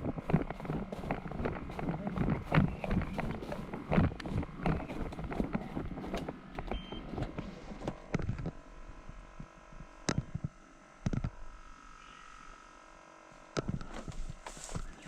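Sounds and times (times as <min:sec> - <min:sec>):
footsteps: 0:00.0 - 0:08.5, 0:13.7 - 0:15.0
gear rustling: 0:00.0 - 0:08.6.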